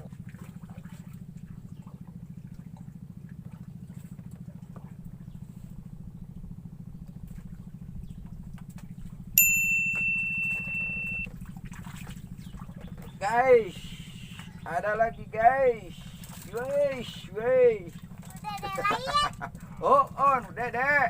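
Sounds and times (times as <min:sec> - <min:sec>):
small engine running: 0:00.0 - 0:21.0
high-pitched electronic beep: 0:09.8 - 0:11.3.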